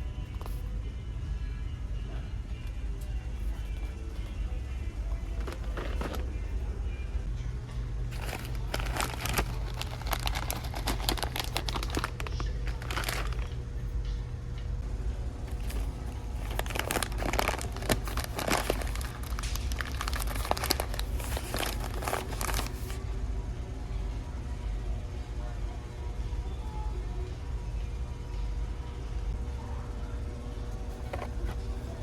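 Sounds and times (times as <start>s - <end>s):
steady low hum: 0.0s - 32.0s
plastic packaging crinkling: 5.0s - 6.5s, 8.1s - 13.6s, 15.5s - 23.0s, 30.8s - 32.0s.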